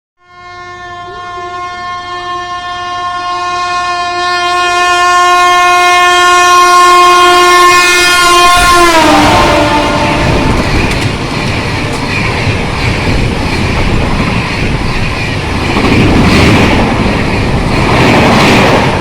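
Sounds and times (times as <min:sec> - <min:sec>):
locomotive horn blast: 0:00.2 - 0:10.6
train rumble: 0:08.0 - 0:19.0.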